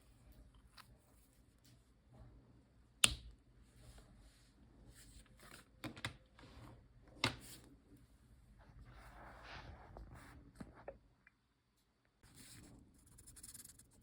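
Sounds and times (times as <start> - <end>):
marker scratching on paper: 12.2 - 14.0.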